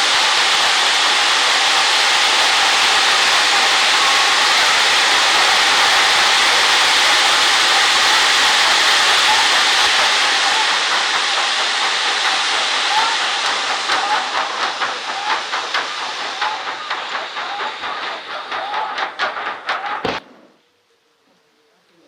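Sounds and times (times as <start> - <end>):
firework spraying sparks hissing: 0.0 - 20.6.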